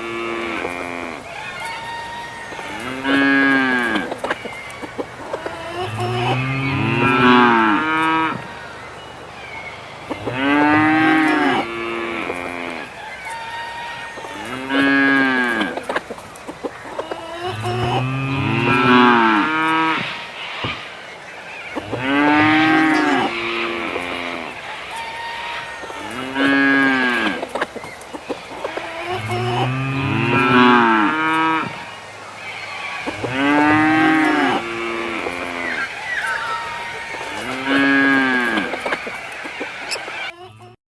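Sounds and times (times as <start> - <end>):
cattle mooing: 0.0 - 4.1, 5.5 - 8.5, 10.2 - 12.9, 13.6 - 15.8, 17.4 - 20.2, 21.8 - 27.4, 28.7 - 31.9, 33.1 - 39.0.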